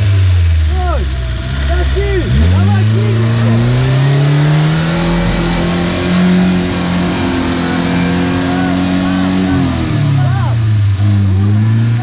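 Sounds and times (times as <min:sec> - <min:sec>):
engine revving at high rpm: 0:00.0 - 0:12.0.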